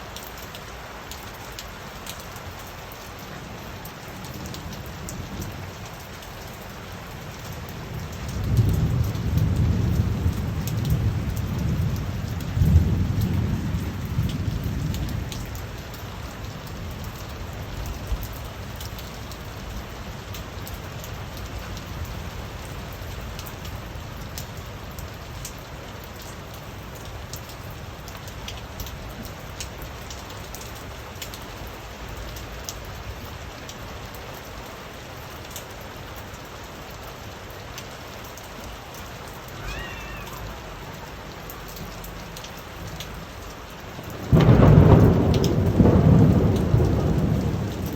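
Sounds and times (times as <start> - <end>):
raindrops ticking: 0.0 - 47.9
steady rain falling: 0.0 - 47.9
thunder rumbling: 7.8 - 15.6, 39.4 - 47.9.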